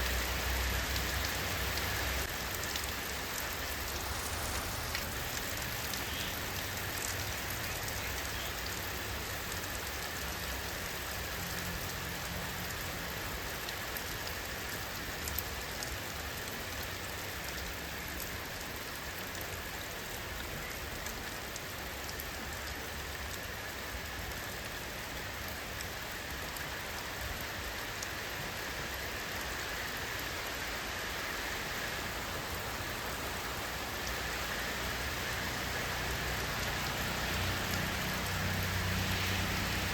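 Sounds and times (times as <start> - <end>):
rain hissing: 0.0 - 16.2, 25.0 - 39.9
raindrop impacts: 1.7 - 7.4.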